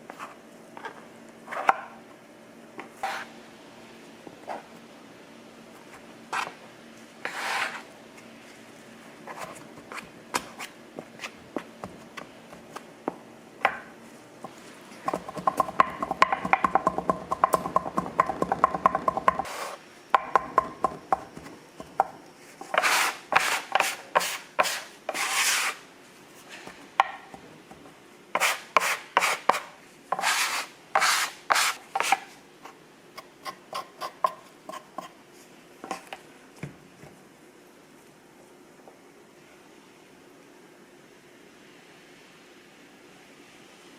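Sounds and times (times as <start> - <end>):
rubbing and scraping handling: 7.2 - 11.5, 22.4 - 25.8, 28.4 - 32.8.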